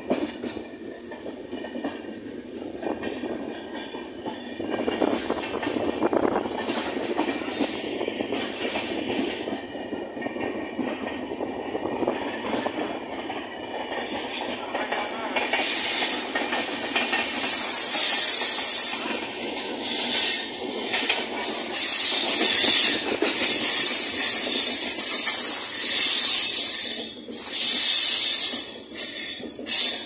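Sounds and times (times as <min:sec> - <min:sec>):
train on next track: 0:00.0 - 0:30.0
train wheels on rails: 0:00.0 - 0:30.0
high wheel squeal: 0:17.2 - 0:30.0.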